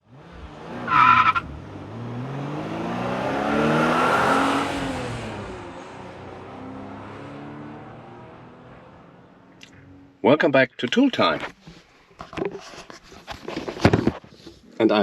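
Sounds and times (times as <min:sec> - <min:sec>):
car driving past: 0:00.1 - 0:10.2.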